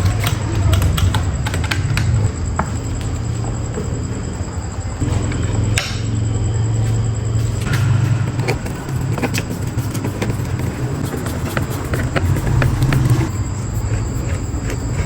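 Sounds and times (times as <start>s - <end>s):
low motor hum: 5.0s - 15.0s
bright rasp: 7.8s - 15.0s.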